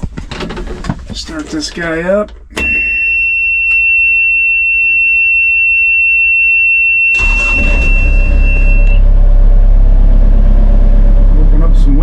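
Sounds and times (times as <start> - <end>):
warning buzzer high tone: 2.6 - 9.1
diesel engine starting and idling: 7.1 - 12.0.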